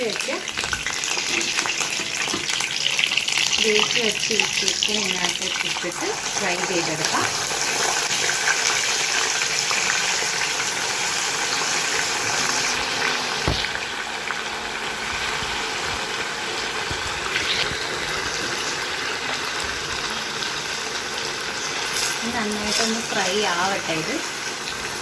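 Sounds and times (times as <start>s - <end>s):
chicken sizzling in oil: 0.0s - 25.0s.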